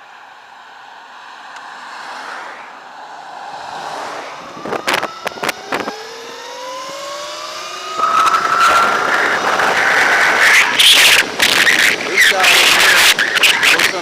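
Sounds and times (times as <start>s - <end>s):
wind buffeting microphone: 3.5s - 14.0s
electric motorbike motor whining: 4.4s - 13.8s.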